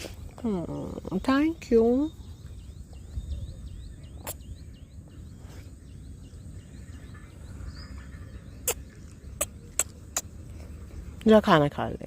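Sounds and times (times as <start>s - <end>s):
low steady rumble: 0.1s - 12.0s
small animal chirping: 8.5s - 10.4s.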